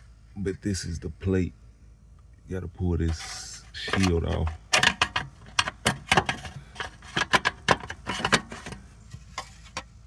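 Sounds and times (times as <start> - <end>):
metal clicks clanks and rattles: 3.8 - 8.8.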